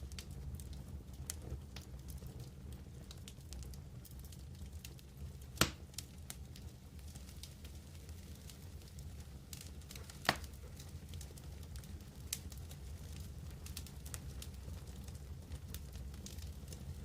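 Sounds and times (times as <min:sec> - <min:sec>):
campfire crackling: 0:00.0 - 0:17.0
loud sharp pop: 0:05.6 - 0:05.8.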